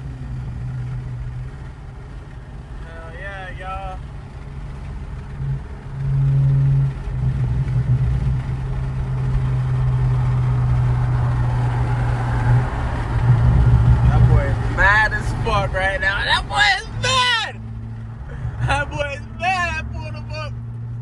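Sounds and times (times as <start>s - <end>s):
car engine steady drone: 0.0s - 21.0s.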